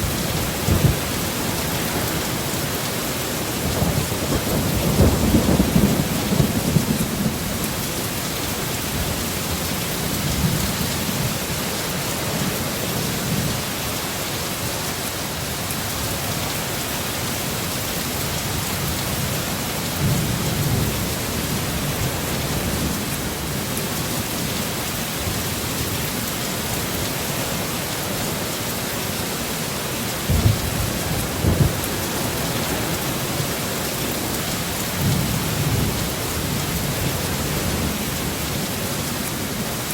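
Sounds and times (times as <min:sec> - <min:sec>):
low rumbles of thunder: 0:00.0 - 0:02.7, 0:03.5 - 0:07.9, 0:30.2 - 0:33.6
heavy rain pouring: 0:00.0 - 0:39.9.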